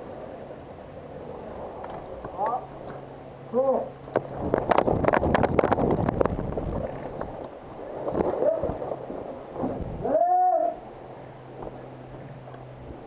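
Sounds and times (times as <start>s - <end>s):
clatter and knocks: 4.2s - 7.3s
person shouting: 10.0s - 10.8s.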